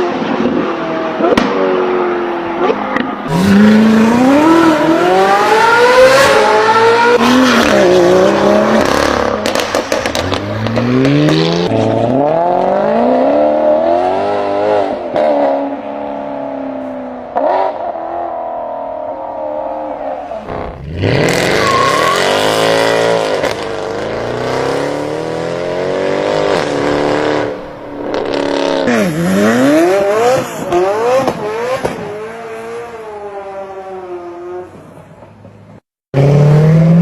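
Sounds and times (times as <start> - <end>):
car engine revving and accelerating: 0.0 - 16.3, 19.4 - 34.8, 36.2 - 37.0.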